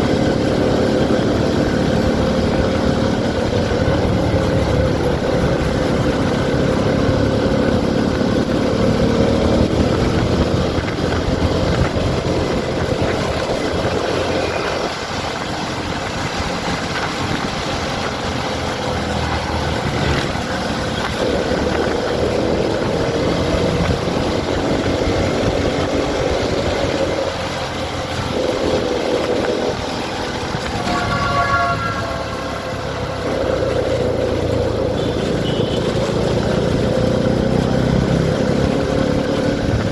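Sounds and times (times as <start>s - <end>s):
motorcycle engine running: 0.0s - 39.9s
road and wind noise: 0.0s - 39.9s
brief high-pitched tone: 30.6s - 33.5s.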